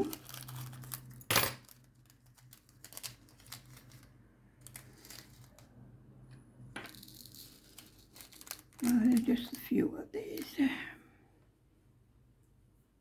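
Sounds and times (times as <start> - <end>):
soft clicks of crystals: 7.0 - 9.6
plastic bags crinkling: 7.6 - 9.6.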